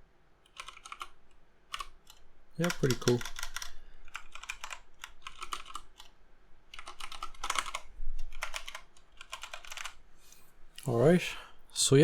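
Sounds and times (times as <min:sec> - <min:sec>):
mechanical keyboard keys clicking: 0:00.5 - 0:06.1, 0:06.7 - 0:10.0.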